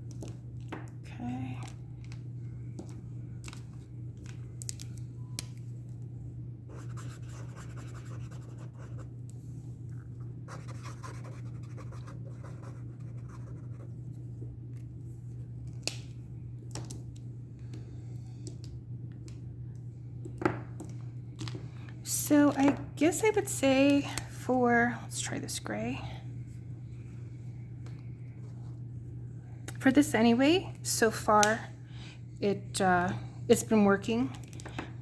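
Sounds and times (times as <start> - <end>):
steady low hum: 0.0 - 35.0
marker nib scratching: 6.7 - 9.0, 10.5 - 13.9.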